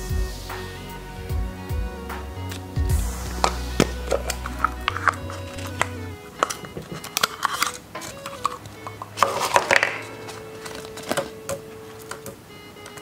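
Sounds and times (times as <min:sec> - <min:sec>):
soft background music: 0:00.0 - 0:13.0
plastic capsule clicking: 0:03.4 - 0:13.0
plastic wrapper crinkling: 0:03.9 - 0:13.0.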